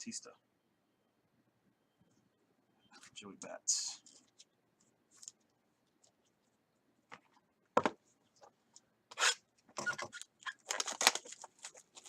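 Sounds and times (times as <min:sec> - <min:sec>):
rustling paper and plastic wrapping: 0:09.9 - 0:12.0.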